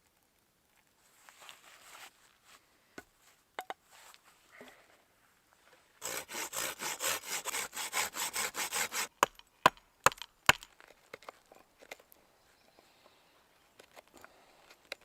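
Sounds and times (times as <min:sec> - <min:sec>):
hand saw cutting wood: 0:06.0 - 0:09.4.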